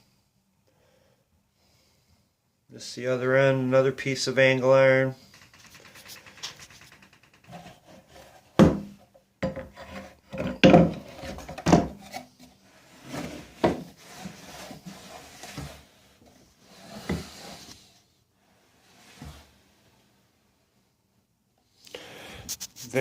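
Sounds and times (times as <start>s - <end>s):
wood scraping against wood: 5.2s - 8.7s, 9.5s - 17.8s.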